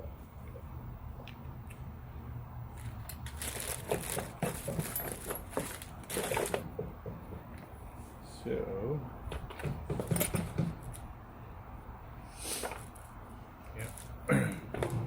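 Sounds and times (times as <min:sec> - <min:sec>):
plastic parts rustling and clicking: 0:02.8 - 0:06.7.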